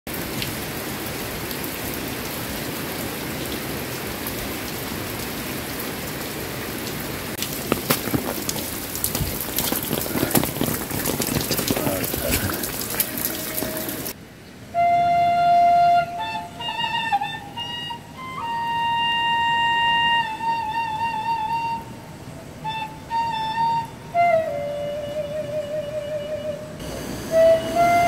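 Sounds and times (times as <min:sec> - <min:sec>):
heavy rain falling: 0:00.1 - 0:14.2
water drips and splashes: 0:00.1 - 0:14.2.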